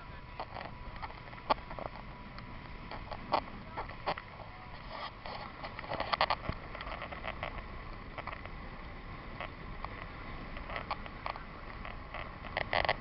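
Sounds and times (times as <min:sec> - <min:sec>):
steady low rumble: 0:00.0 - 0:13.0
water lapping against a boat: 0:00.0 - 0:13.0.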